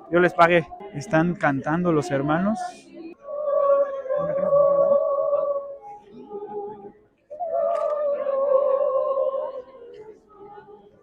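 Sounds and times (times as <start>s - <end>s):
person singing worship song: 0.0s - 11.0s.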